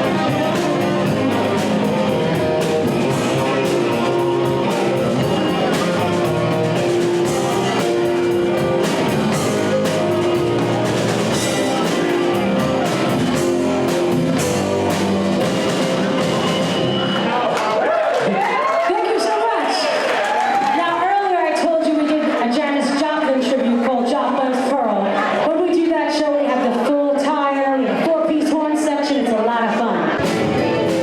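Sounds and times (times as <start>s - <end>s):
electric guitar: 0.0s - 17.5s, 30.1s - 31.0s
drum kit beating: 0.0s - 17.8s, 30.1s - 31.0s.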